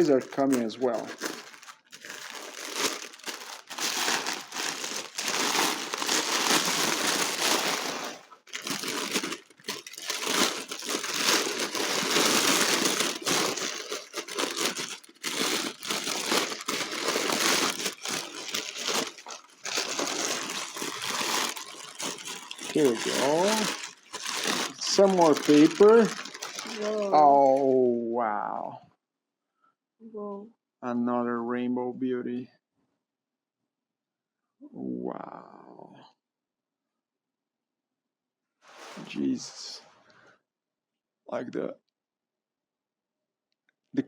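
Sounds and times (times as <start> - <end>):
packing paper crumpling and rustling: 0.0 - 27.7.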